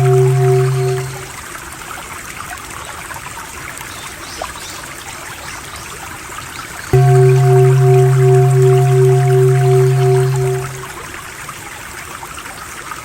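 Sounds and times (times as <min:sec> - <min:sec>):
low humming drone: 0:00.0 - 0:01.4, 0:07.0 - 0:11.0
water trickling and burbling: 0:00.0 - 0:13.0.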